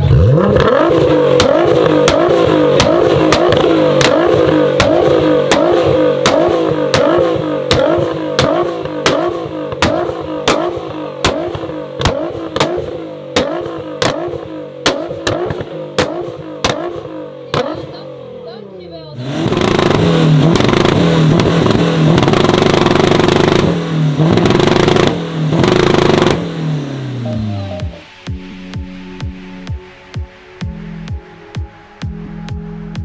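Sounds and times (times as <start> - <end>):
car engine on rev limiter: 0.0 - 28.2
sharp exhaust bangs: 0.0 - 28.2.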